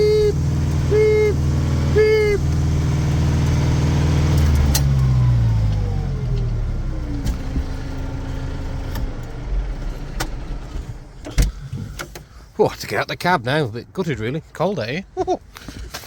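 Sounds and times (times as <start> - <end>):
tractor diesel engine slowing: 0.0 - 12.4.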